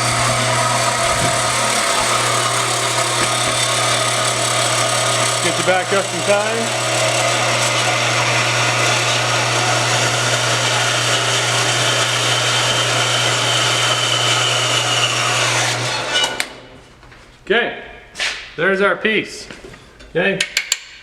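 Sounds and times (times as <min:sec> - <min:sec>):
power saw cutting steel: 0:00.0 - 0:16.7.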